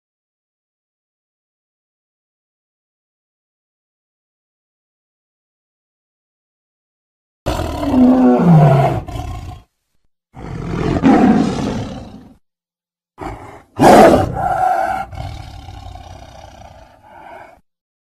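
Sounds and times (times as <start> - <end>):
tiger grunt: 7.5 - 9.7, 10.4 - 12.4, 13.2 - 17.6
tiger roaring: 7.5 - 9.7, 10.4 - 12.4, 13.2 - 17.6.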